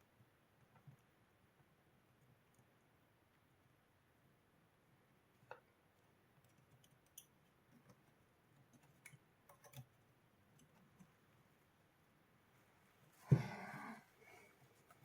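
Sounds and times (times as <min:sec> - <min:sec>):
faint small clicks and taps: 0:05.3 - 0:11.5.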